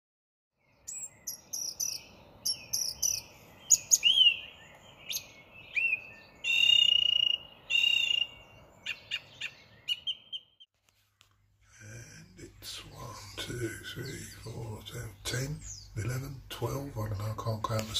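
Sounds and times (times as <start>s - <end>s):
starlings calling: 0.6s - 11.6s, 12.8s - 17.9s.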